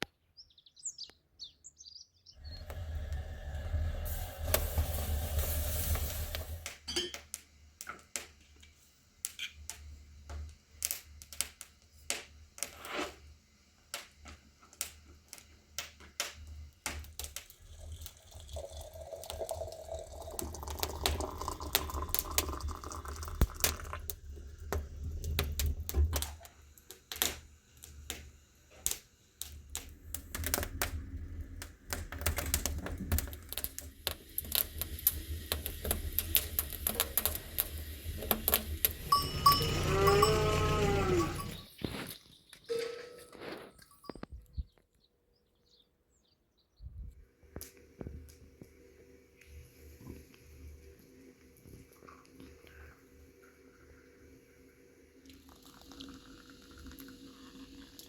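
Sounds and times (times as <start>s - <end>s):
water pouring into a vessel: 2.4s - 6.7s, 17.1s - 26.2s, 29.9s - 41.6s, 55.2s - 58.0s
wood fire crackling: 2.4s - 42.2s.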